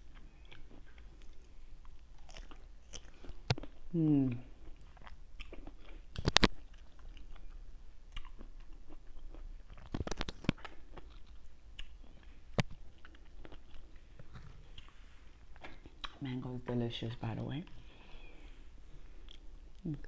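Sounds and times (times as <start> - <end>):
wet chewing and biting: 0.0 - 3.8, 4.6 - 16.2.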